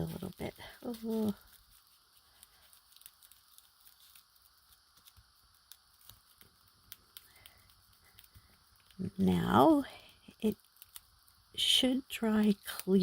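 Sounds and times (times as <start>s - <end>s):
paper and cellophane clicks: 0.0s - 9.0s, 12.4s - 13.0s.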